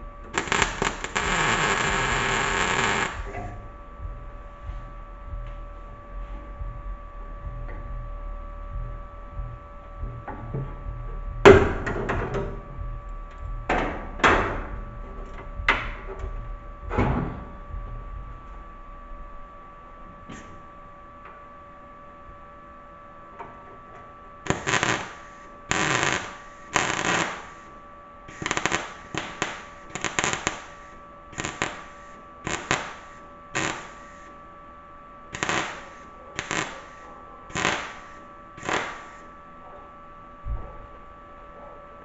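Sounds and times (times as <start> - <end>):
welding arc bursts: 0.0 - 3.6, 24.5 - 34.4, 35.3 - 39.3
steady welder hum: 0.0 - 41.4.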